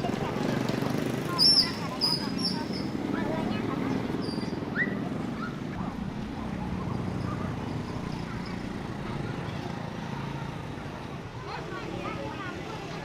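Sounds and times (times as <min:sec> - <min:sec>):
low hum of engines: 0:00.0 - 0:13.0
murmur of voices: 0:00.0 - 0:13.0.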